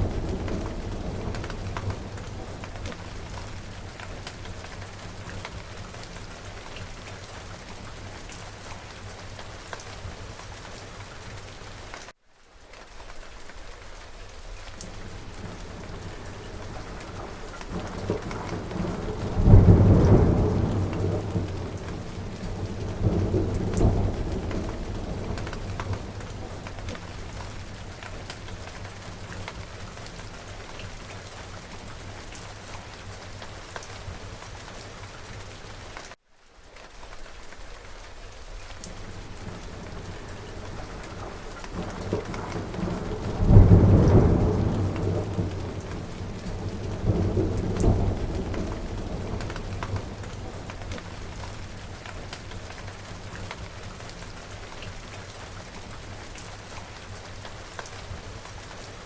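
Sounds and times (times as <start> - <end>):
thunder rumbling: 0.0 - 10.4, 14.9 - 31.1, 38.9 - 54.3
steady rain falling: 0.0 - 59.0.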